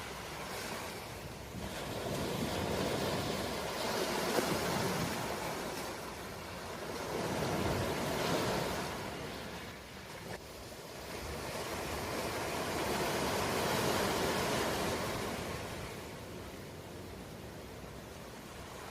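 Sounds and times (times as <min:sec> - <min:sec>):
ocean waves washing in: 0:00.0 - 0:18.9.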